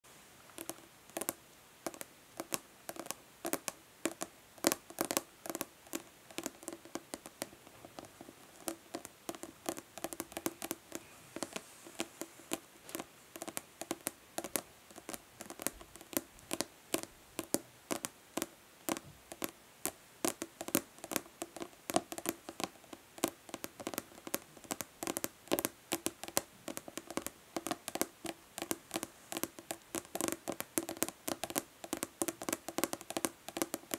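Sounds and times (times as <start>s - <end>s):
fingernails tapping plastic bottle: 12.5s - 33.9s.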